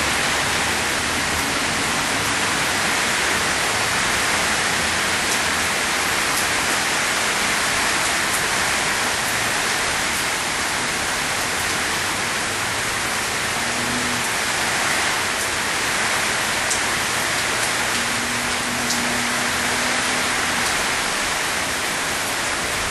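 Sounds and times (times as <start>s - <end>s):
rain falling: 0.0s - 22.9s
floodwater running: 11.9s - 22.9s.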